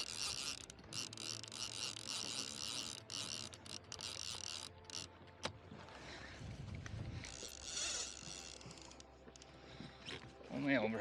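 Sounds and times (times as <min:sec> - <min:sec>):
fishing reel drag buzzing: 0:00.0 - 0:05.2, 0:07.2 - 0:09.5.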